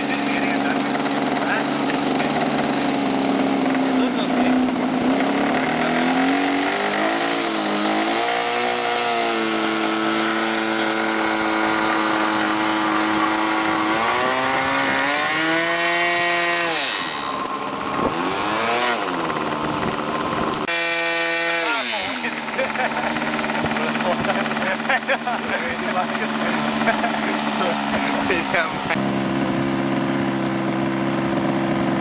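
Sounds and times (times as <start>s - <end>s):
model airplane engine revving: 0.0s - 32.0s.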